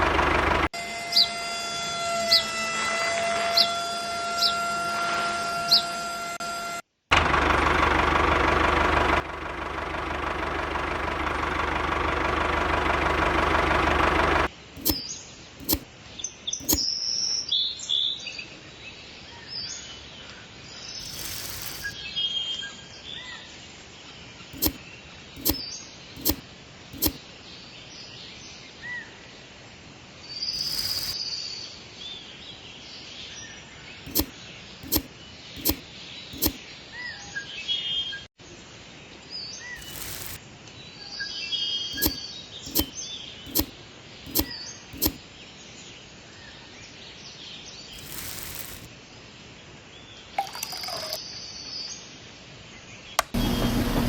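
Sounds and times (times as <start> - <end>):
sharp clicks: 14.1 - 15.0, 15.6 - 15.9, 16.6 - 16.9, 21.0 - 22.0, 24.6 - 24.8, 25.4 - 25.6, 26.2 - 26.4, 27.0 - 27.2, 30.6 - 31.2, 34.1 - 35.8, 36.4 - 36.6, 39.8 - 40.4, 42.0 - 42.9, 43.5 - 45.2, 48.0 - 48.9
bursts of hiss: 21.0 - 22.0, 39.8 - 40.4, 48.0 - 48.9.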